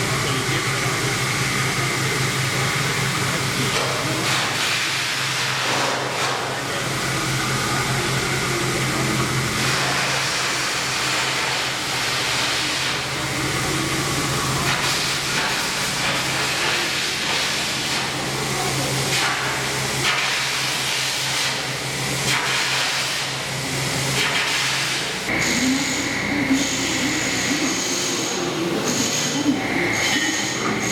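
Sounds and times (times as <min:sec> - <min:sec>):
milling machine hum: 0:00.0 - 0:30.9.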